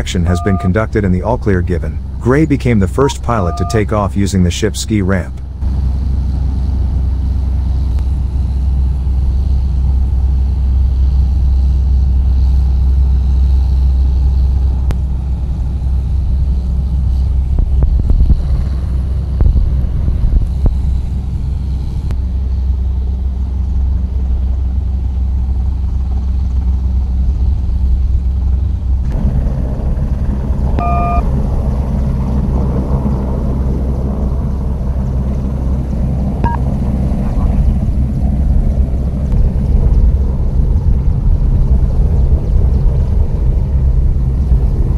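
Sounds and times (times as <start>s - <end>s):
short beep: 0.0s - 0.8s, 2.3s - 4.1s, 30.8s - 31.2s
flight deck low rumble: 0.0s - 44.9s
jet engine: 5.4s - 44.9s.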